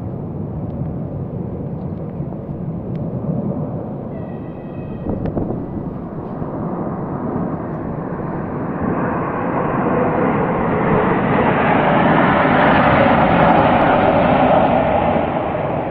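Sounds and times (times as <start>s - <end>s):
jet aircraft roaring overhead: 0.0s - 15.9s.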